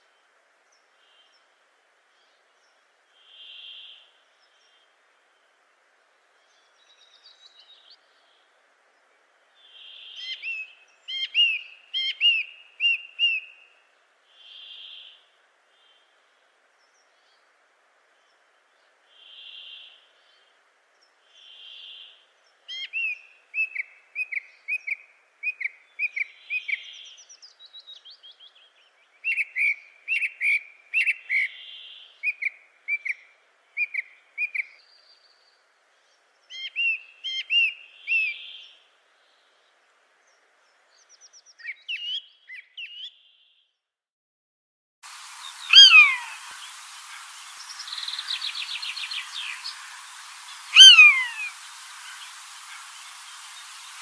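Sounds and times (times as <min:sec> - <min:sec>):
hiss: 0:45.0 - 0:54.0
birds calling: 0:45.1 - 0:54.0.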